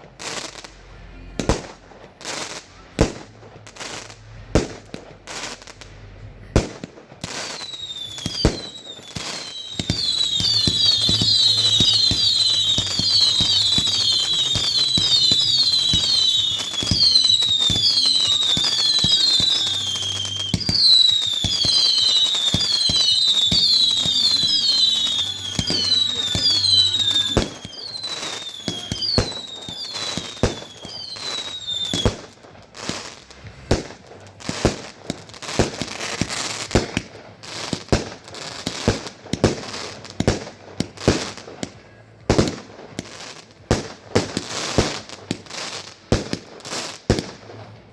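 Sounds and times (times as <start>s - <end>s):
firework bangs: 0.0s - 47.9s
firework whistles falling in pitch: 6.6s - 32.3s.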